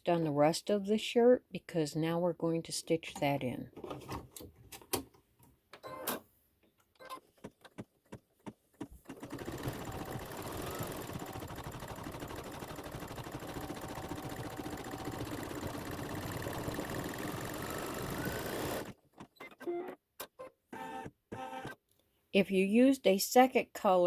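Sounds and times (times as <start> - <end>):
embroidery machine stitching: 8.9 - 19.7.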